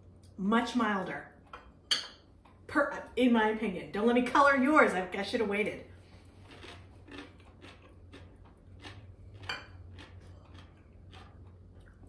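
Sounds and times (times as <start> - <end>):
low steady hum: 0.0 - 12.0
chewing crisp vegetables: 6.0 - 12.0.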